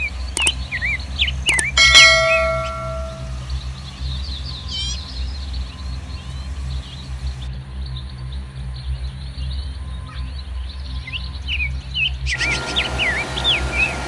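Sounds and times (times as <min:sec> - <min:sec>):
birds chirping: 0:00.4 - 0:03.4
metallic clang: 0:01.5 - 0:03.4.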